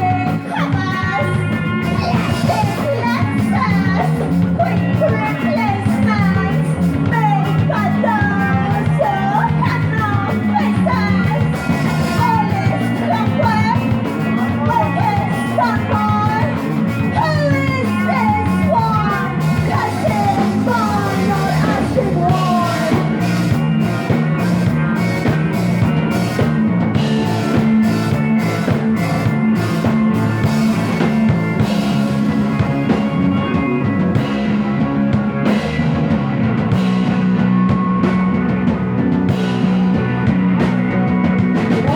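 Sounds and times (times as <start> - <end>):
drums and cymbals: 0.0 - 41.9
lead guitar bending notes: 0.0 - 41.9
rock band playing: 0.0 - 41.9.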